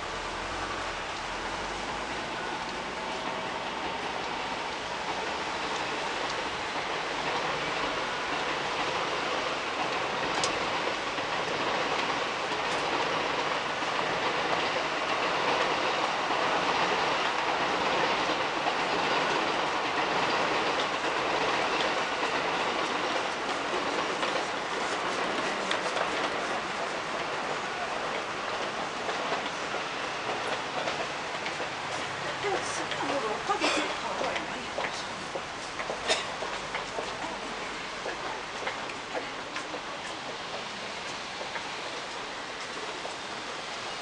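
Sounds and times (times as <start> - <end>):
train passing: 0.0 - 44.0.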